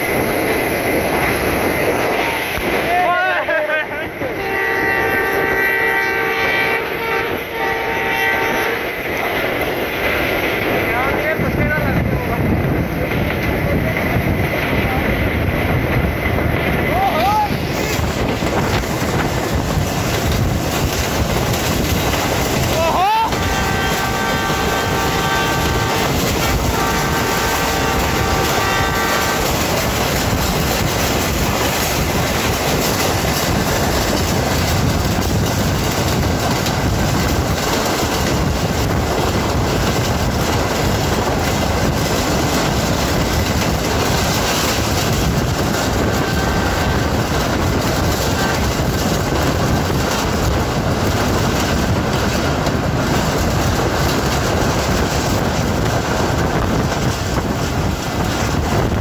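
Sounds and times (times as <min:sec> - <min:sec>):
train running on track: 0:00.0 - 0:59.0
train horn blasts: 0:04.4 - 0:08.9, 0:23.3 - 0:29.8, 0:46.2 - 0:47.0.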